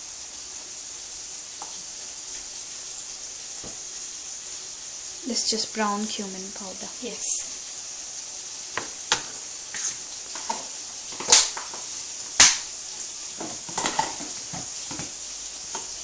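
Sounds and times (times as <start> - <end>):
faint steady hiss: 0.0 - 16.0
kitchen utensils clicking and scraping: 9.1 - 11.9, 13.4 - 16.0.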